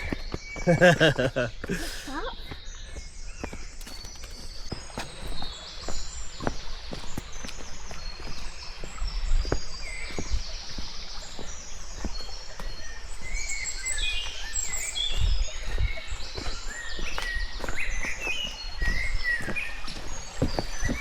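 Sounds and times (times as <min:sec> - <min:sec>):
footsteps: 0:00.0 - 0:12.8, 0:15.1 - 0:21.0
songbirds singing and chirping: 0:00.0 - 0:21.0.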